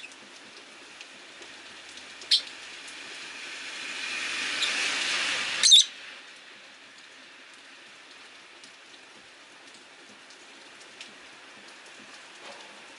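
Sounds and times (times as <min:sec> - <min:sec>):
steady rain hiss: 0:00.0 - 0:12.9
loud rushing noise: 0:03.1 - 0:05.6
faint drips: 0:06.3 - 0:12.9.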